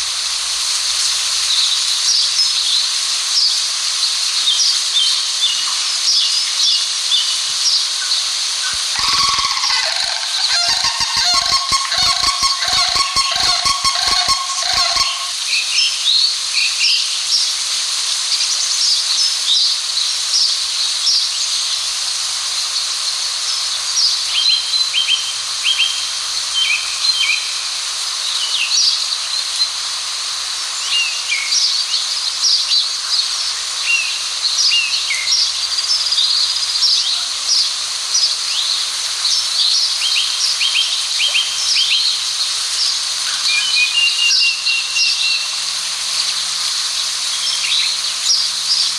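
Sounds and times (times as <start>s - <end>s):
steady high hiss: 0.0s - 48.9s
small birds chirping: 8.6s - 15.3s
honking call: 8.7s - 15.4s.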